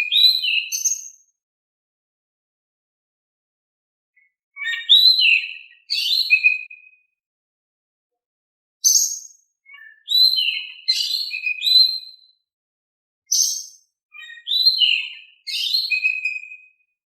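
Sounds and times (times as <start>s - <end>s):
bird whistling song: 0.0s - 1.3s, 4.2s - 7.2s, 8.8s - 12.4s, 13.3s - 16.8s.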